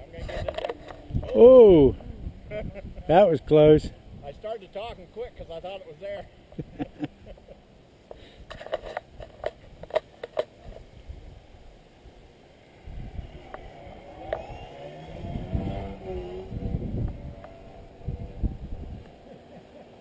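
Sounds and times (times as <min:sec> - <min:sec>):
wind buffeting microphone: 0:00.0 - 0:04.6, 0:12.8 - 0:19.3
model plane motor droning: 0:12.8 - 0:19.2.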